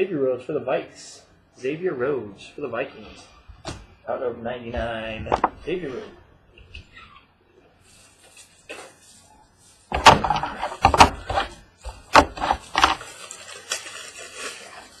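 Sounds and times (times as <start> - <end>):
packaging rustling: 7.8 - 15.0.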